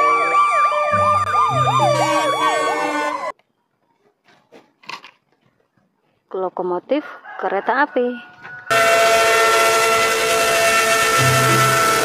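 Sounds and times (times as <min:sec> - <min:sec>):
ambulance siren yelping: 0:00.0 - 0:03.3, 0:08.7 - 0:12.0
deep horn blasts: 0:08.7 - 0:12.0.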